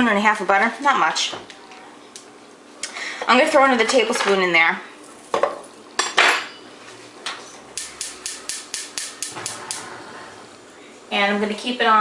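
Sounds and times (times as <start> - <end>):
gas burner igniter clicking: 7.8 - 9.8
utensils knocking on pan: 7.8 - 9.8.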